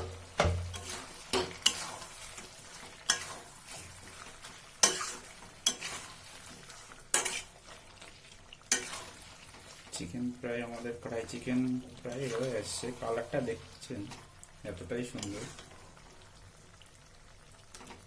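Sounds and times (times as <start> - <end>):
spoon scraping and knocking a pan: 0.0 - 7.6, 8.7 - 9.2
low sizzle: 0.0 - 18.0.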